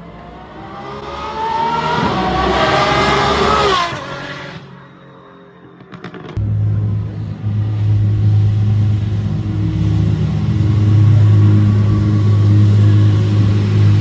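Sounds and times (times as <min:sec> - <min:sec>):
car engine running: 0:06.4 - 0:14.0.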